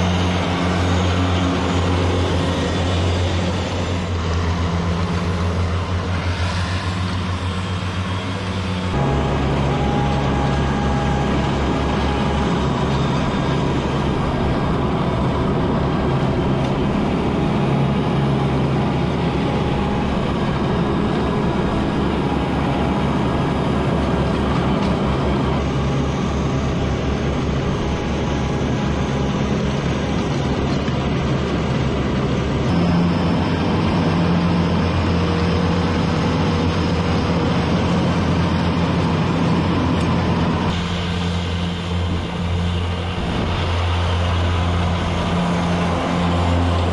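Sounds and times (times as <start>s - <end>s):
vehicle engine running: 0.0s - 46.9s.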